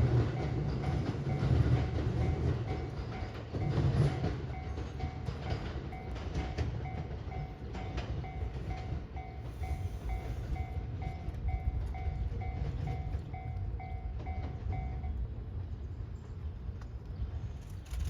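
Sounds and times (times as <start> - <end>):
railway warning bell dinging: 0.0 - 16.6
train rumbling: 0.0 - 18.0.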